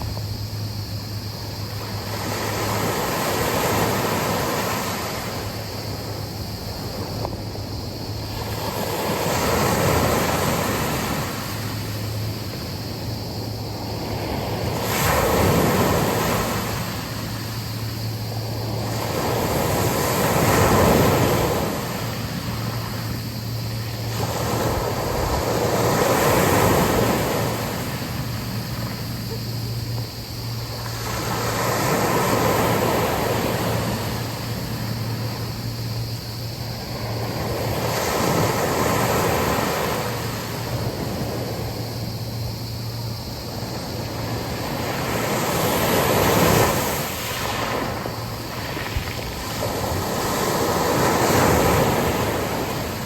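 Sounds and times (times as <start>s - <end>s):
sea waves breaking on beach: 0.0s - 53.0s.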